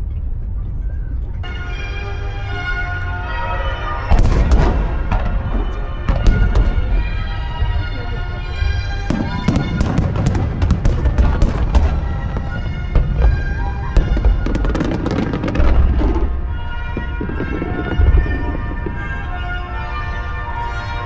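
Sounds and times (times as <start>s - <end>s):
background music: 1.0s - 21.0s
fireworks booming: 4.1s - 7.8s, 9.0s - 20.7s
fireworks crackling: 4.2s - 7.7s, 9.1s - 21.0s.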